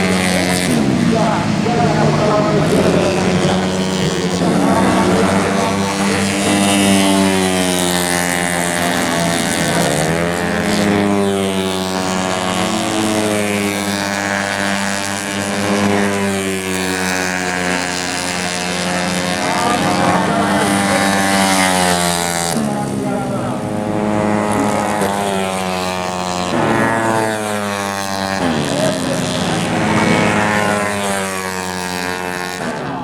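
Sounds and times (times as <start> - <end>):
scooter race engines: 0.0 - 33.0.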